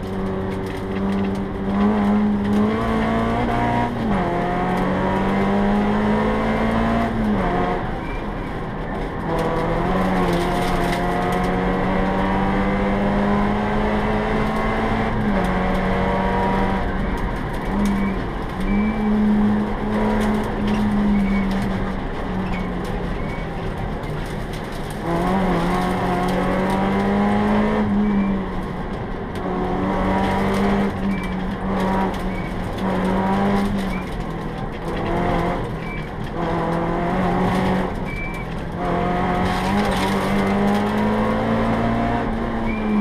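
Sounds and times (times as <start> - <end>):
car engine revving hard: 0.0 - 7.9, 9.2 - 16.9, 24.9 - 28.2, 29.5 - 35.7, 36.3 - 43.0.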